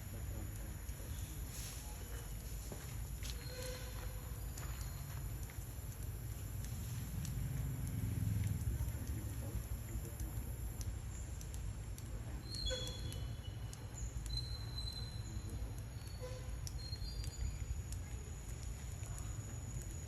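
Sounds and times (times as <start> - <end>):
low outdoor rumble: 0.0 - 20.0
faint clicks: 0.2 - 20.0
small animals chirping: 12.4 - 17.6.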